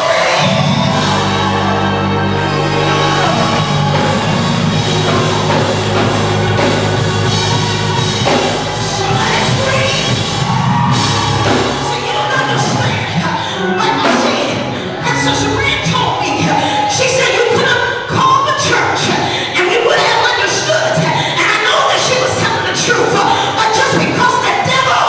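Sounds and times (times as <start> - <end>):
bass line: 0.0 - 17.2
church praise music: 0.0 - 25.0
drum kit: 0.4 - 12.7.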